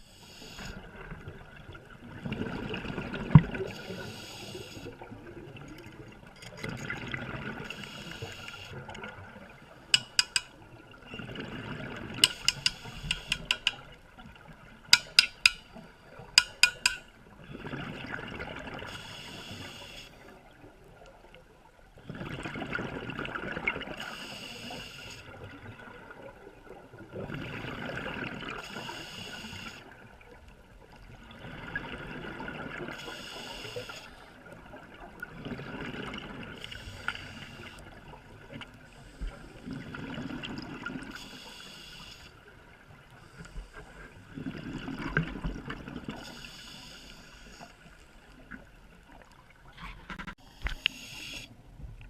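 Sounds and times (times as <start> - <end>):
diver breathing through regulator: 3.6 - 5.0, 46.2 - 47.9, 50.2 - 51.5.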